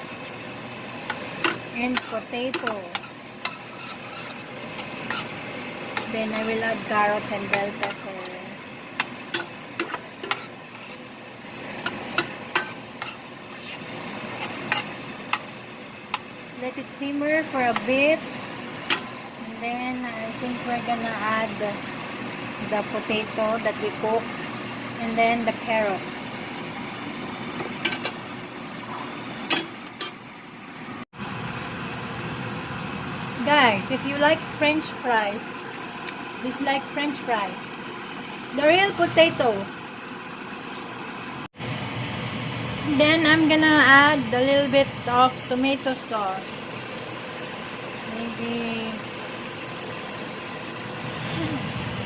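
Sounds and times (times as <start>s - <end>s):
food sizzling: 0.0s - 52.0s
steady background hum: 0.0s - 52.0s
utensil scraping a pan: 1.1s - 11.1s, 11.8s - 15.4s, 27.6s - 30.2s.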